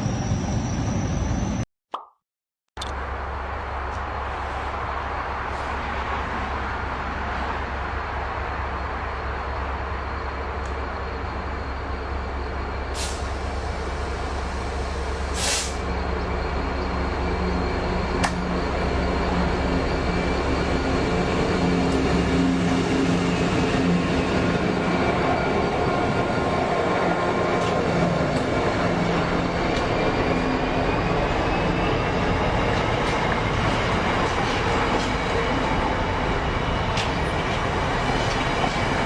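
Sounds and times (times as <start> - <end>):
train running with low hum: 0.0 - 1.6, 2.8 - 39.0
short air hisses: 13.0 - 13.3, 15.4 - 15.8.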